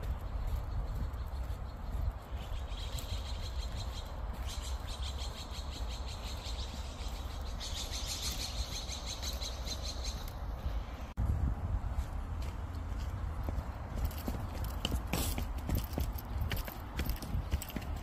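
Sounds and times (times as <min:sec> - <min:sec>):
songbird trills: 0:00.0 - 0:10.5.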